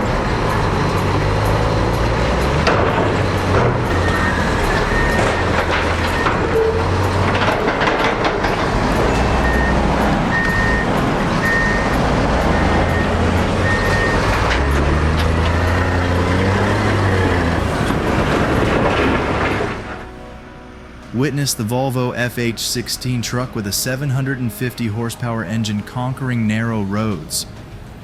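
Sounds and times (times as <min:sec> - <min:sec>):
reversing alarm beeping: 0:00.0 - 0:18.6
clattering knocks: 0:00.0 - 0:20.1
heavy diesel machinery running: 0:00.0 - 0:28.0.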